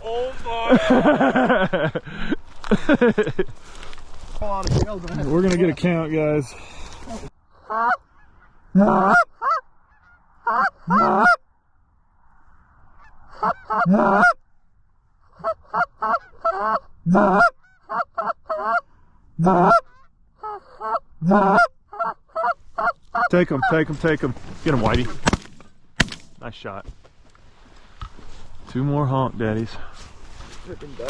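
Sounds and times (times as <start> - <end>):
geese honking: 7.6 - 11.4, 12.9 - 14.4, 15.3 - 24.0.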